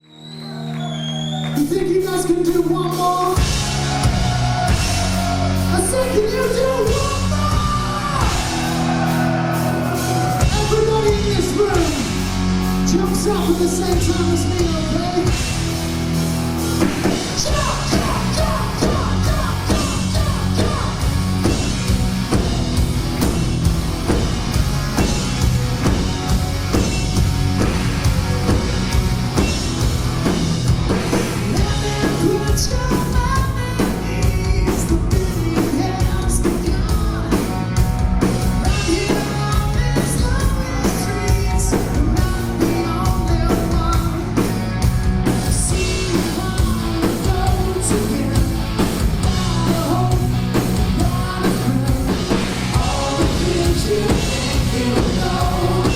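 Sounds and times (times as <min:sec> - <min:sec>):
bass guitar: 0:00.1 - 0:55.9
distorted guitars: 0:01.9 - 0:55.9
person singing: 0:02.1 - 0:12.1, 0:17.3 - 0:21.1, 0:31.5 - 0:37.8, 0:38.6 - 0:44.4, 0:45.4 - 0:55.9
drum kit pounding: 0:02.5 - 0:55.9.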